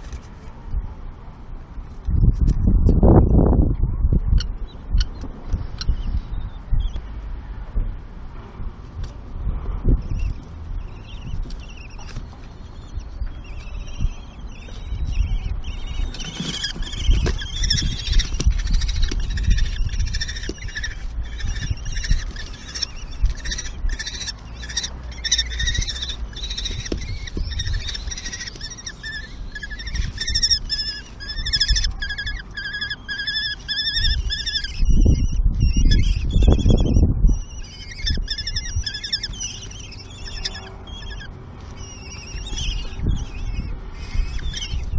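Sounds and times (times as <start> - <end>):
chicks shrill begging calls: 11.0 - 44.9.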